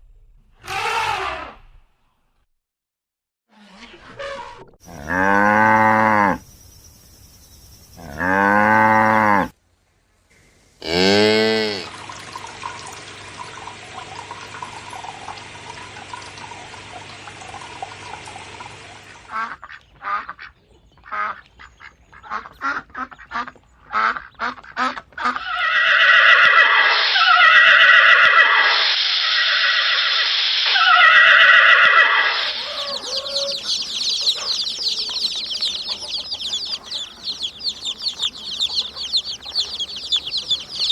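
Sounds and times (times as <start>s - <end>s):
cattle mooing: 4.9s - 6.4s, 8.0s - 9.5s, 10.8s - 11.9s, 32.3s - 40.9s
loud honking calls: 30.8s - 40.9s.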